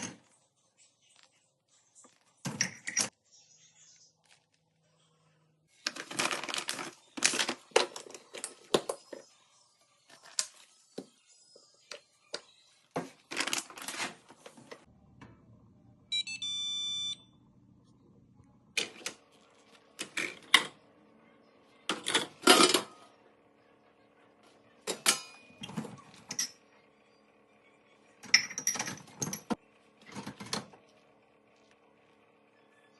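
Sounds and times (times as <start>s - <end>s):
electronic button beep: 16.1s - 17.2s.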